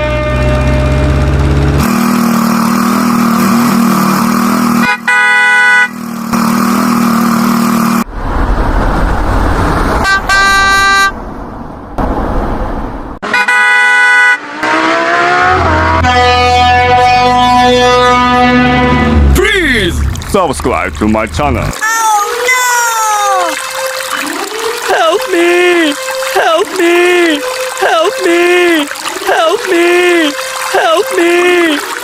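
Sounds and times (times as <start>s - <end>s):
horn honks: 0.0s - 7.0s, 10.0s - 11.2s, 13.2s - 19.5s, 23.2s - 32.0s
engine revving: 0.0s - 12.6s, 14.2s - 21.8s
vehicle engines running: 0.0s - 13.3s, 14.4s - 32.0s.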